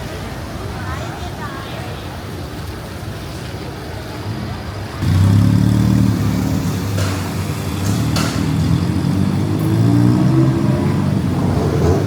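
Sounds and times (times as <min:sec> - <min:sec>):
vehicle engine running: 0:05.0 - 0:12.0
sharp knocks: 0:06.9 - 0:08.6.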